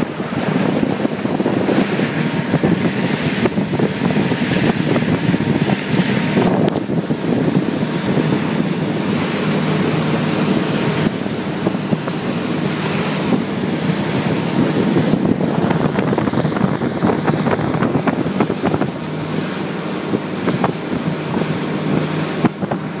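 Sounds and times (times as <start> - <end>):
outboard motor running: 0.0 - 23.0
rushing water: 0.0 - 23.0
wind noise on microphone: 0.0 - 23.0.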